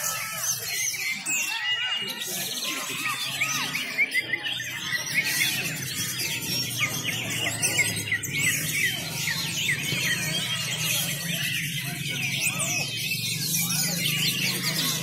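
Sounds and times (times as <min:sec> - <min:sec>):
many songbirds singing: 0:00.0 - 0:15.0.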